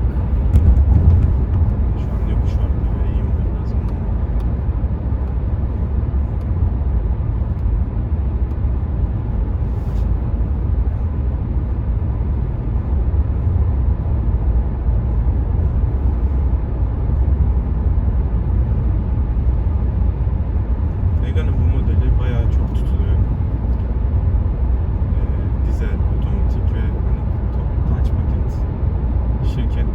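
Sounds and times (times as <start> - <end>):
diesel engine: 0.0 - 29.9
road and wind noise in car: 0.0 - 29.9.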